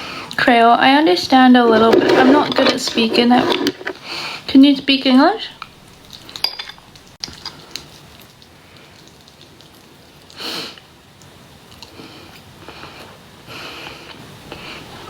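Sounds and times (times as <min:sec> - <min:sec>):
person chewing: 0:07.0 - 0:10.3
breathy sniff: 0:11.9 - 0:15.0.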